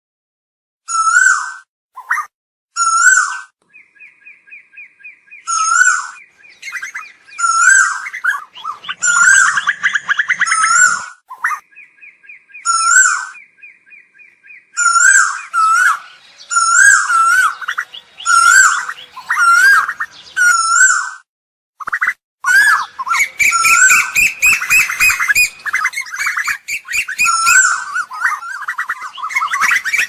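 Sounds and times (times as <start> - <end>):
koel calling: 5.4 - 11.8, 12.5 - 21.2, 21.9 - 30.0.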